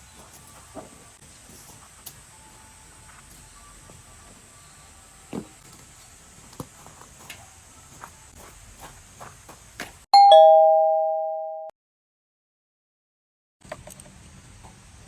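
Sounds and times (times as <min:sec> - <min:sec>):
two-note doorbell chime: 0:10.2 - 0:11.7.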